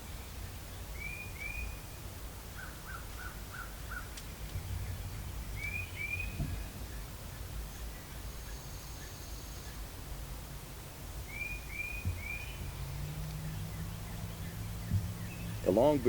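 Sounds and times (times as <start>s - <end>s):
low outdoor rumble: 0.0s - 16.0s
bird notes in a run: 2.6s - 9.9s, 11.2s - 16.0s
short arching bird chirps: 5.6s - 7.0s, 11.3s - 15.7s.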